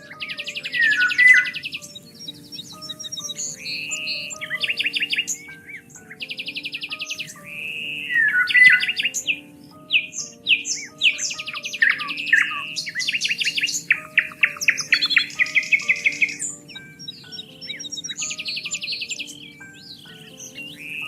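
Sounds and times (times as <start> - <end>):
birds singing: 0.0 - 21.0
soft music of held notes: 0.0 - 21.0.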